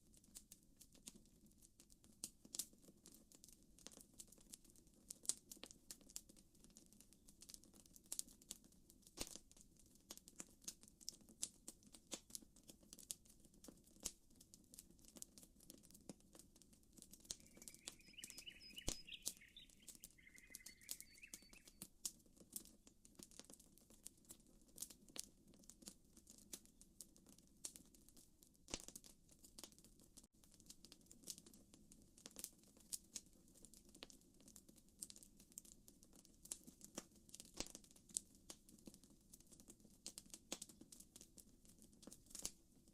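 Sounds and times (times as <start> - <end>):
campfire crackling: 15.1 - 21.8
bird chirping: 17.2 - 21.8.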